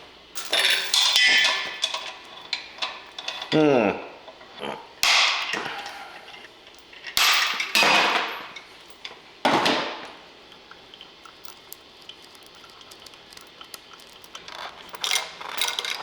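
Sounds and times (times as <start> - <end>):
tools and parts clicking: 0.4 - 3.6, 10.6 - 16.0.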